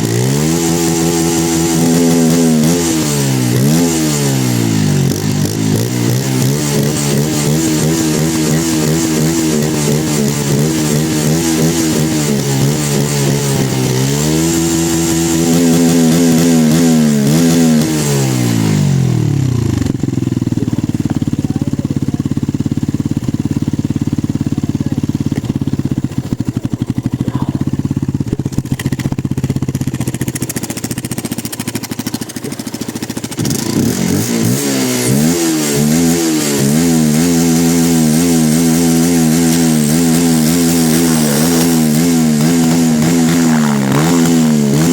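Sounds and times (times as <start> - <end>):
motorcycle engine revving and idling: 0.0 - 44.9.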